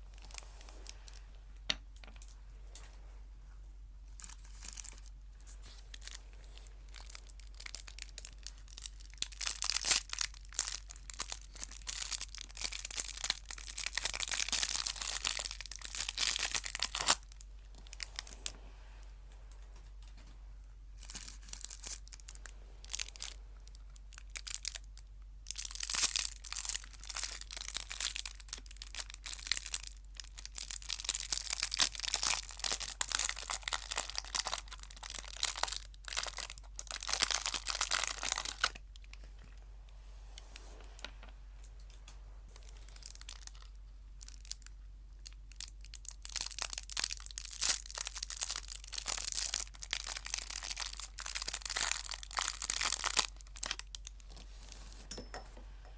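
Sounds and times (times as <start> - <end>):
wrapper crinkling and tearing: 0.0 - 1.2, 4.1 - 18.5, 21.0 - 39.6, 42.6 - 54.7.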